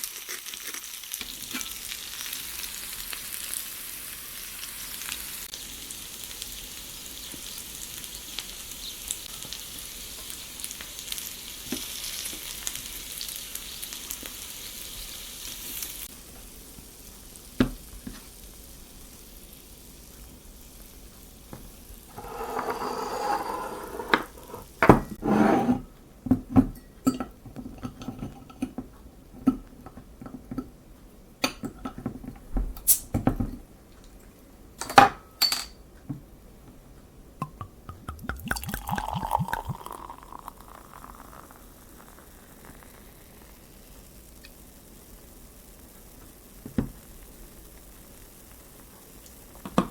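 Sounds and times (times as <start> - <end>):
potatoes sizzling in a frying pan: 0.0 - 24.9, 39.2 - 49.9.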